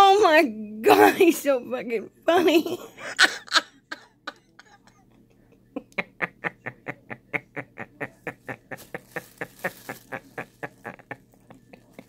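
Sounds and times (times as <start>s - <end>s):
woman laughing hard: 2.5s - 5.0s, 5.6s - 12.0s.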